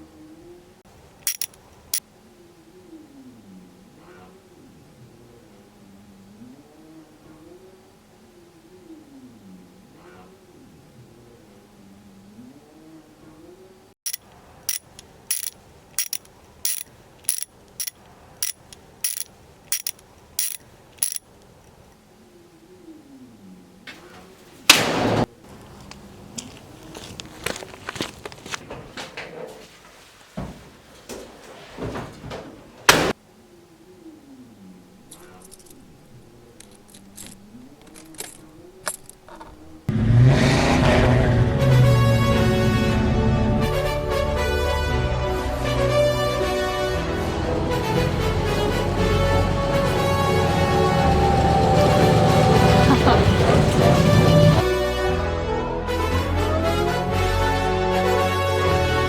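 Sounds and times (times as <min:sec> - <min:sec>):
metallic mechanism clicking: 0:01.2 - 0:01.6, 0:14.1 - 0:21.3
faint engine-like hum: 0:46.2 - 0:54.8.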